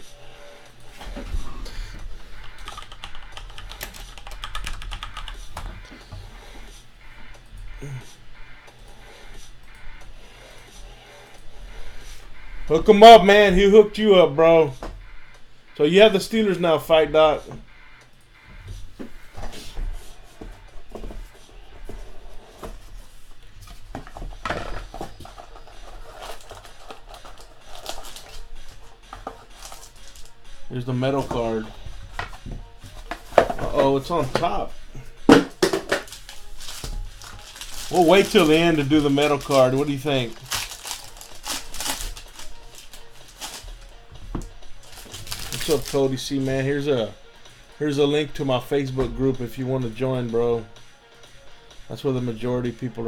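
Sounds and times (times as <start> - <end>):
steady low hum: 0.0 - 45.6
keyboard typing clicks: 2.4 - 5.7
card pack wrapper crinkling: 24.9 - 28.5, 29.2 - 30.4, 35.9 - 43.9, 44.8 - 46.1.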